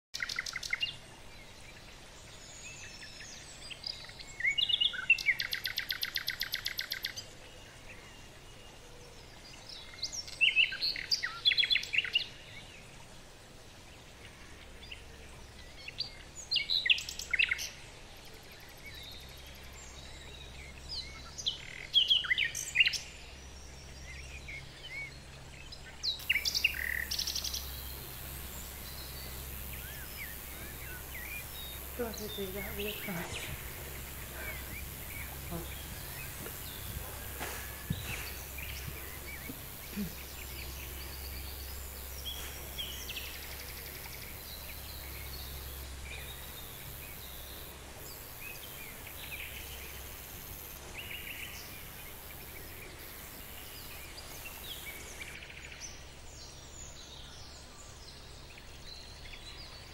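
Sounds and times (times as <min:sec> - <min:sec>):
birds chirping: 0:00.2 - 0:59.9
bird trill: 0:26.2 - 0:41.8.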